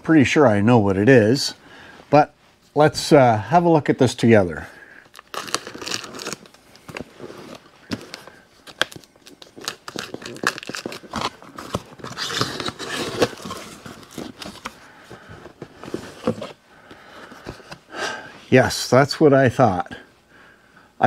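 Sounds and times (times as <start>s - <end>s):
cardboard flaps rustling: 9.6s - 16.6s.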